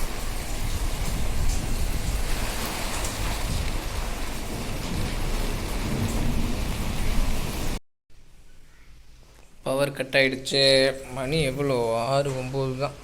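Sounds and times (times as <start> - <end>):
heavy rain pouring: 0.0 - 7.8, 11.2 - 13.0.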